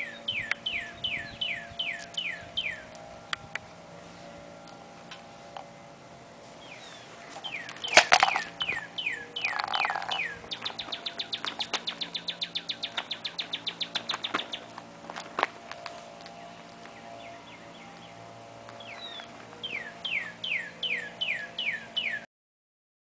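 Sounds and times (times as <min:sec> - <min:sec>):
fast high bird trill: 0:00.0 - 0:03.0, 0:06.6 - 0:15.0, 0:16.0 - 0:22.3.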